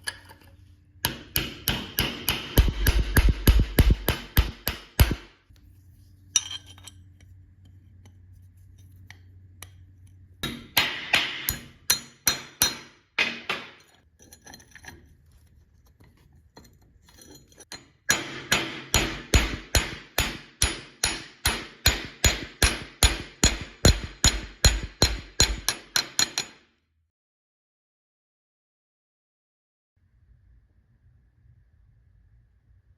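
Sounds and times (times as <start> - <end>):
hammer striking steel on anvil: 1.0 - 5.3, 10.4 - 13.8, 18.1 - 26.6.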